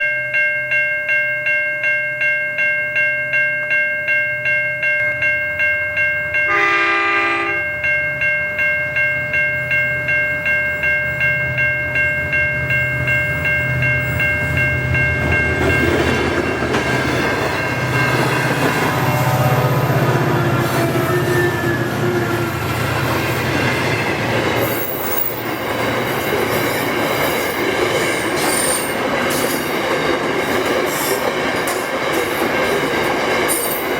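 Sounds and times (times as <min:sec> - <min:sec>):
pulsing electronic warning bell: 0:00.0 - 0:31.6
rumble of train wagons: 0:05.9 - 0:33.9
train horn blast: 0:06.5 - 0:07.7, 0:18.8 - 0:22.7
squealing train wheels: 0:15.7 - 0:33.9.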